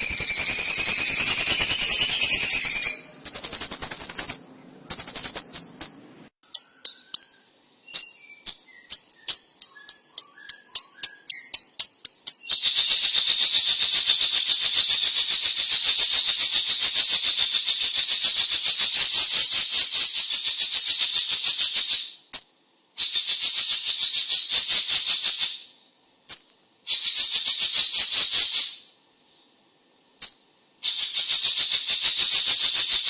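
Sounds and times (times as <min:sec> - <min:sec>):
bird rattling trill: 0:00.0 - 0:07.4.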